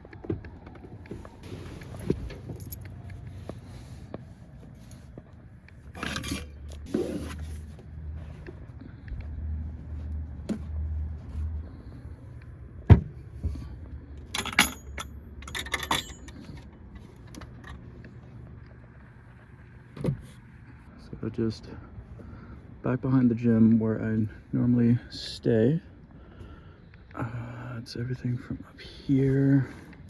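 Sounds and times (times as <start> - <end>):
keys jangling: 14.3 - 16.5.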